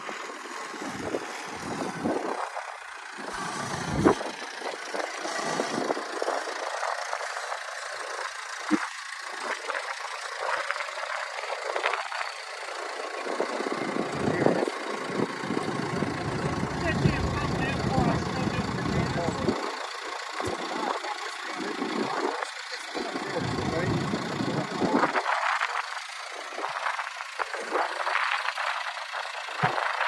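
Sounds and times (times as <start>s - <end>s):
vehicle engine running: 0.1s - 30.0s
wind buffeting microphone: 14.0s - 19.6s.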